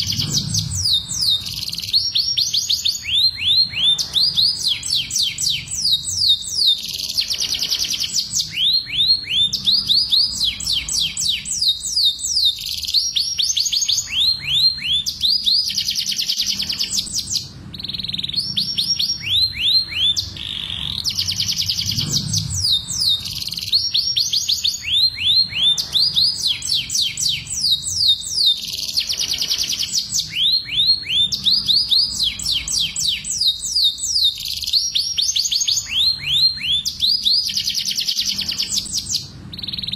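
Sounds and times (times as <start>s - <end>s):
canary calling: 0.0s - 39.9s
canary singing trills: 0.0s - 39.9s.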